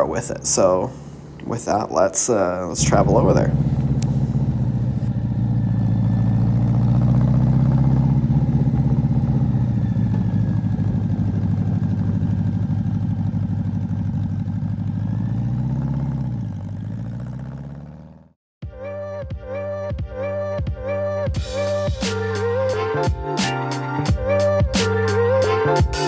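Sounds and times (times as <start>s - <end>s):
motorcycle engine running: 2.8s - 18.4s.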